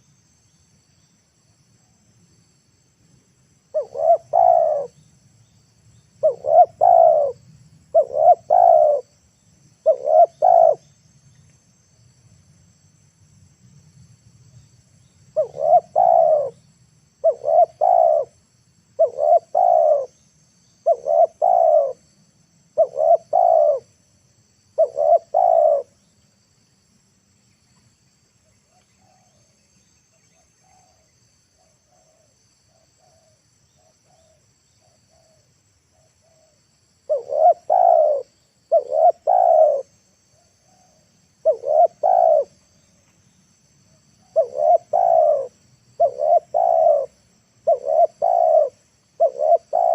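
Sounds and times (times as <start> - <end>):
insects hissing: 0.0 - 49.9
dove cooing: 3.7 - 5.0, 6.2 - 9.1, 9.8 - 10.9, 15.4 - 16.6, 17.2 - 18.4, 19.0 - 20.2, 20.8 - 22.0, 22.8 - 23.9, 24.8 - 26.0, 36.2 - 42.7, 44.2 - 49.9.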